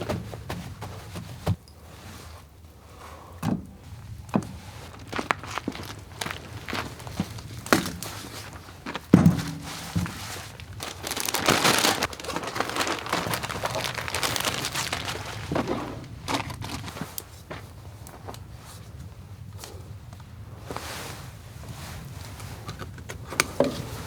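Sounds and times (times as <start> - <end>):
crinkling and rustling: 3.5 - 24.0
handling knocks: 6.8 - 17.7.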